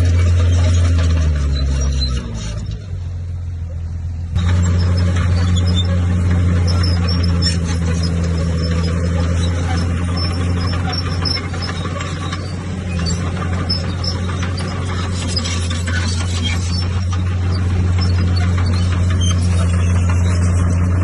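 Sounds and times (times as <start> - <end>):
heavy diesel engine droning: 0.0 - 21.0
machine rattle: 4.4 - 21.0.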